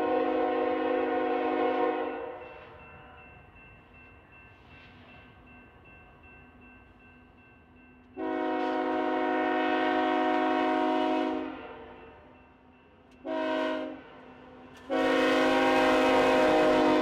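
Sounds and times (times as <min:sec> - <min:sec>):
locomotive air horn blasts: 0:00.0 - 0:02.4, 0:08.2 - 0:12.0, 0:13.2 - 0:14.1, 0:14.9 - 0:17.0.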